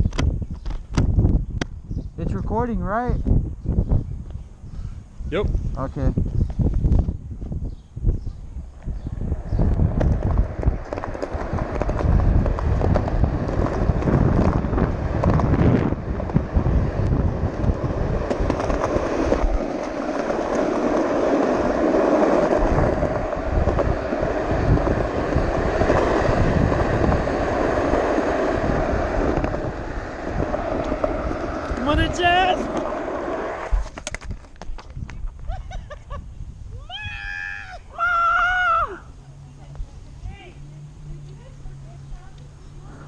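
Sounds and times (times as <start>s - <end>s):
wind on microphone: 0.0s - 40.5s
hard wheels rolling on rough road: 5.9s - 35.6s, 37.0s - 43.0s.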